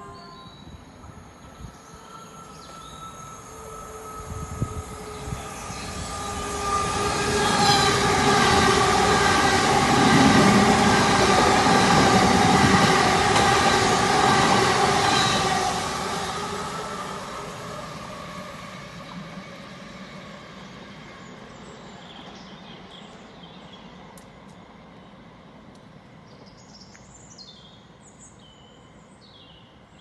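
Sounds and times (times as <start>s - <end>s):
train passing: 0.0s - 26.7s
train whine: 0.0s - 26.7s
train wheels rumbling: 1.1s - 25.0s.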